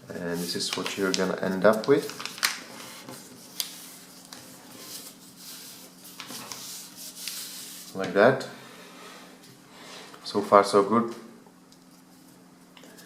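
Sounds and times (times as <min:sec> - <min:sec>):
paper rustling and crackling: 0:00.3 - 0:08.0.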